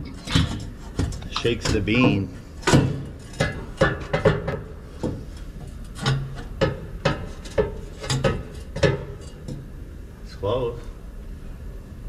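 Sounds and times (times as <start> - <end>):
metal knocks and clanks: 0.0 - 9.7.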